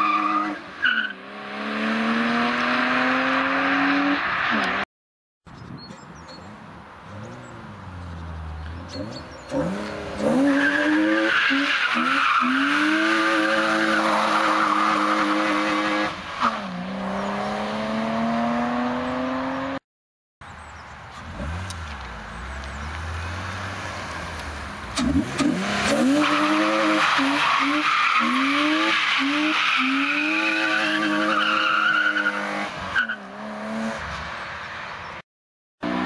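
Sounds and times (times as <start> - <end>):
car engine revving hard: 1.1 - 4.2, 8.9 - 19.8, 24.9 - 34.0.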